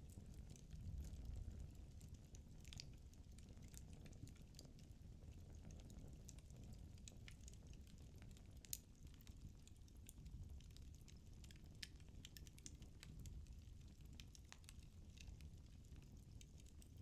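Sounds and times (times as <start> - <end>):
firewood crackling in fireplace: 0.0 - 17.0.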